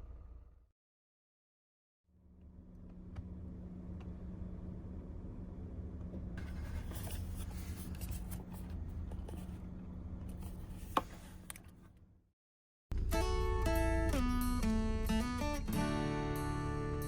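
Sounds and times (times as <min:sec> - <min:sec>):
light scraping and rustling: 0:06.4 - 0:09.6, 0:10.3 - 0:11.8.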